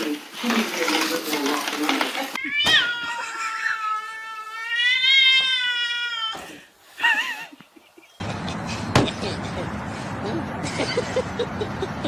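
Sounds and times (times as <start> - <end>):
cat meowing: 2.4 - 6.4.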